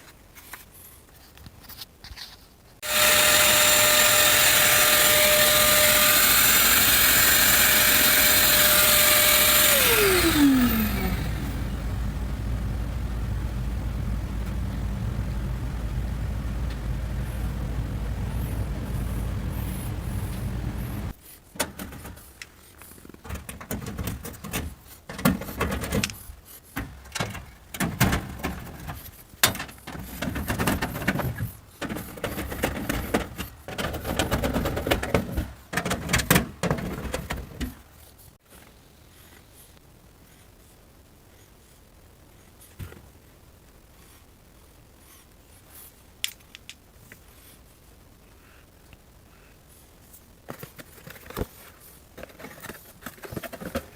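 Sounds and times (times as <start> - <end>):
machine motor hum: 2.8 - 21.1
parts knocking and clattering: 3.0 - 22.2, 26.8 - 37.8.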